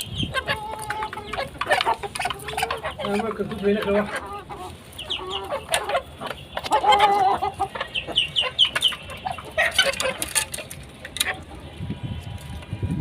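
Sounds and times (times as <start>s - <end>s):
chickens clucking: 0.0s - 12.7s.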